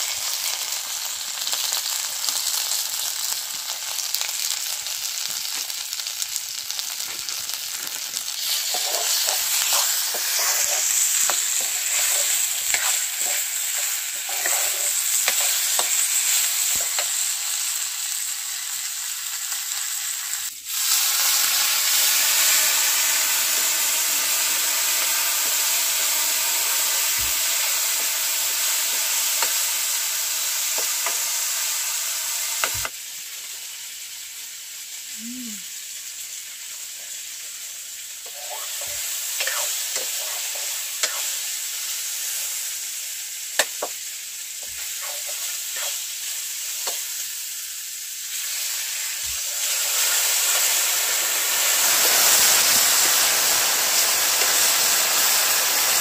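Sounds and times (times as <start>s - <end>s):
food sizzling in oil: 0.0s - 56.0s
ladle scraping metal wok: 8.4s - 17.0s.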